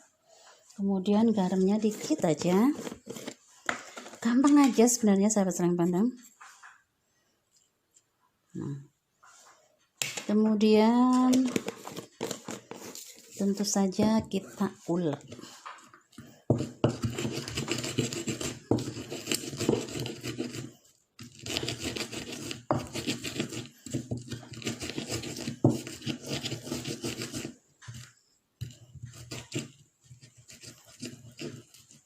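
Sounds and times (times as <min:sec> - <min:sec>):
pestle grinding in mortar: 0:16.5 - 0:27.6.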